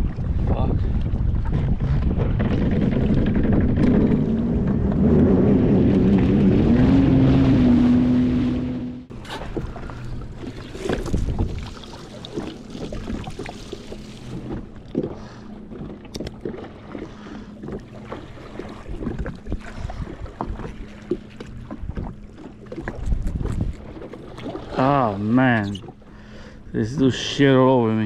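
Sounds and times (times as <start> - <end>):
wind on microphone: 0.0 - 9.1, 10.8 - 14.0, 18.5 - 20.9, 21.6 - 24.7.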